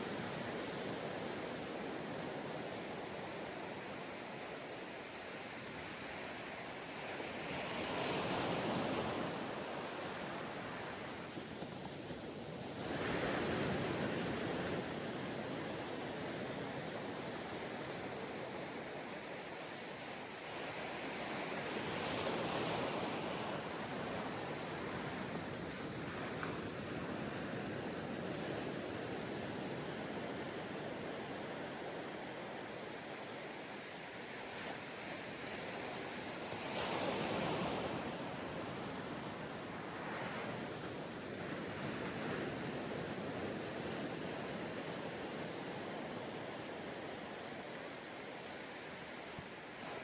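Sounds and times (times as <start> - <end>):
ocean waves on sandy beach: 0.0 - 50.0.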